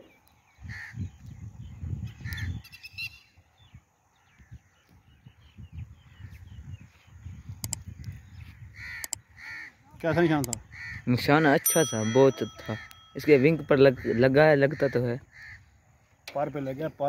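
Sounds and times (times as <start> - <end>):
brief clicks: 7.6 - 7.9
harsh crow-like bird caws: 8.6 - 9.8, 10.7 - 11.1, 13.9 - 16.0.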